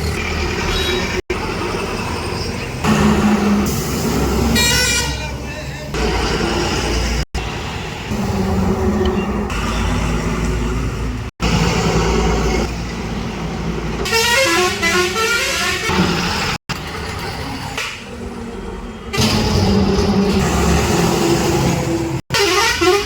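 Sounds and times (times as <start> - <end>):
truck engine rumbling: 0.0 - 23.0
vehicle horn: 4.6 - 5.4, 14.0 - 16.0, 22.3 - 23.0.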